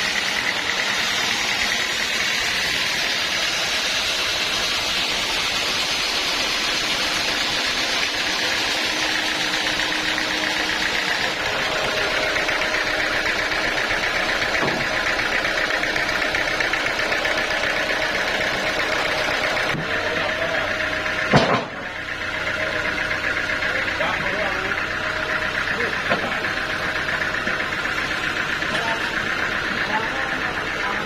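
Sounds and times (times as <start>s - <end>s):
sawmill machinery running: 0.0s - 31.0s.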